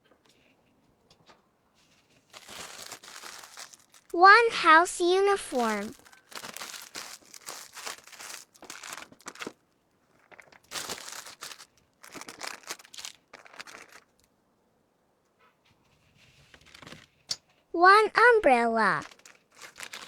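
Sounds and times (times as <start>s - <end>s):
packaging crinkling and rustling: 1.8s - 4.2s, 5.5s - 14.3s, 16.3s - 17.3s, 19.0s - 20.0s.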